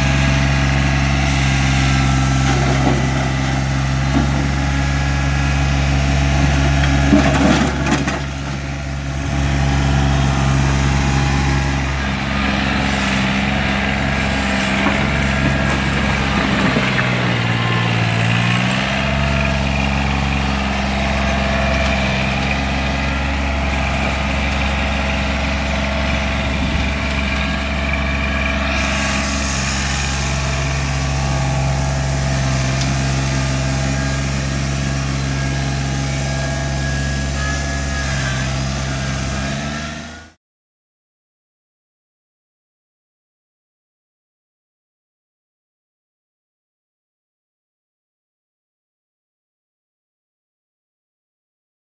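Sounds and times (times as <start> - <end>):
tractor diesel engine running: 0.0 - 40.4.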